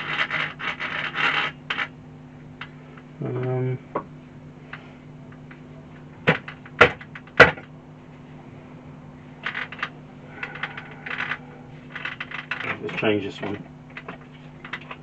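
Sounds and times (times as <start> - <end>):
faint steady hum: 0.0 - 15.0
small hard parts clicking: 9.4 - 15.0.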